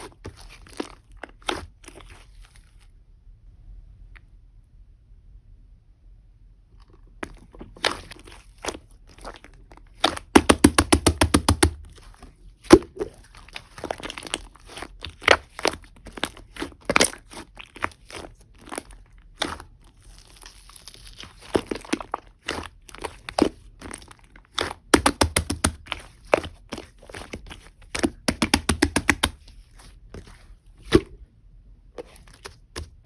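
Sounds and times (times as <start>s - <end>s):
slime clicking and popping: 7.2s - 29.4s.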